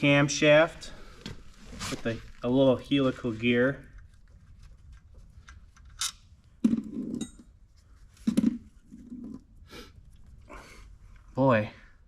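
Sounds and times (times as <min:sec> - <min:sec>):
metallic clinks and knocks: 0:05.8 - 0:07.6.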